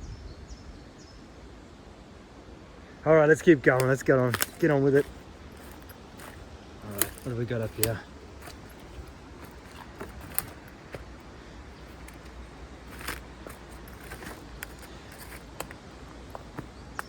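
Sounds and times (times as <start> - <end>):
footsteps on forest floor: 3.4 - 17.0
twigs snapping: 3.4 - 17.0.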